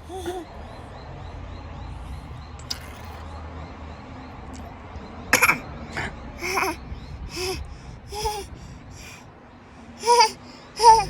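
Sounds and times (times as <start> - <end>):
baby babbling: 0.0 - 0.5, 5.4 - 9.2, 10.0 - 11.0.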